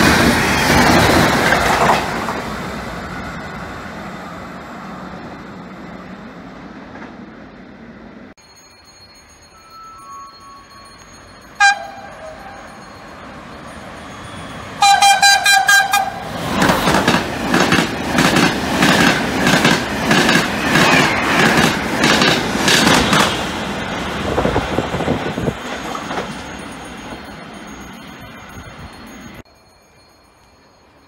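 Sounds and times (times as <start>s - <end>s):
train wheels clattering over rail joints: 0.0s - 2.6s, 16.4s - 26.5s
train horn: 11.6s - 12.6s, 14.8s - 16.3s.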